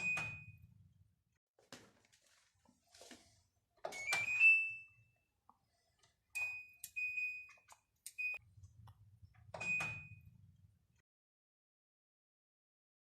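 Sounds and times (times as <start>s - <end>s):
washing machine panel beeps: 0.0s - 0.8s, 3.8s - 5.2s, 6.3s - 8.4s, 9.5s - 10.4s.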